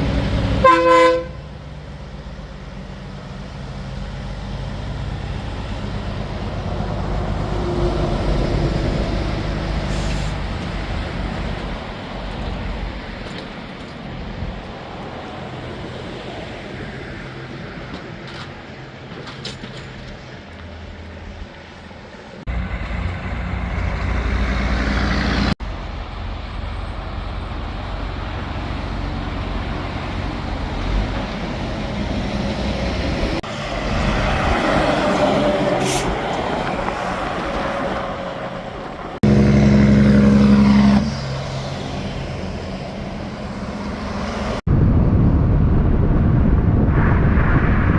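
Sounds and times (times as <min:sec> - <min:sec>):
diesel trucks driving past: 0:00.0 - 0:44.7.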